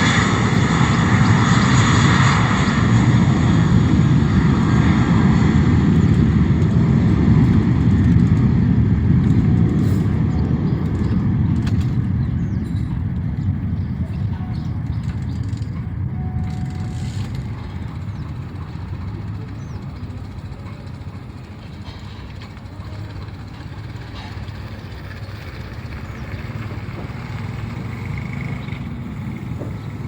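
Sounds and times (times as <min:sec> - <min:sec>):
jet engines rumbling: 0:00.0 - 0:30.0.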